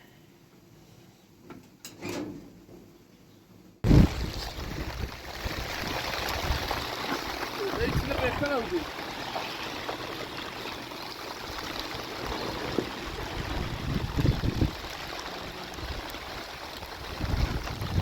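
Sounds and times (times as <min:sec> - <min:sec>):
low rumbles: 0:03.8 - 0:09.0
heavy rain: 0:03.9 - 0:18.0
running water: 0:03.9 - 0:18.0.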